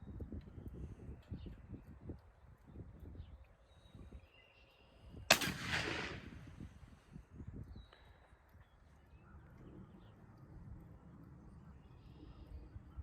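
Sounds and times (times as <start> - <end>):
sharp gunshot with echo: 5.3 - 6.7.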